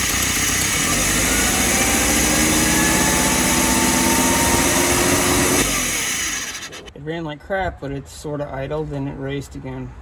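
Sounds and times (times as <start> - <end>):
car engine racing rough: 0.0 - 6.9.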